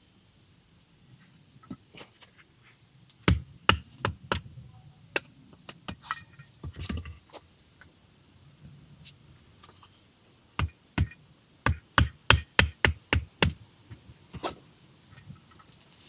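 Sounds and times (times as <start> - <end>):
sharp knocks: 3.3 - 4.4.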